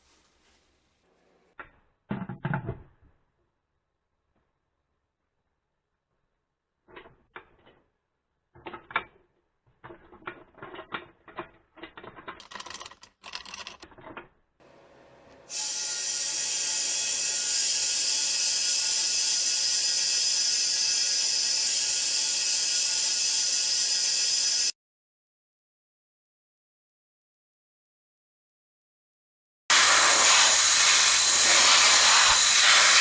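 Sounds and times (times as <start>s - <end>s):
mechanical clicks and rattles: 9.8s - 14.3s
machine hissing and whining: 14.7s - 24.7s, 29.7s - 33.0s.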